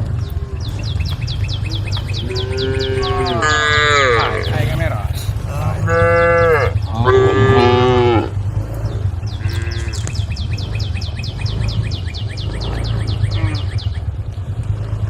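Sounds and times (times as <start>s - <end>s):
steady low hum: 0.0s - 15.0s
cow mooing: 0.2s - 13.8s.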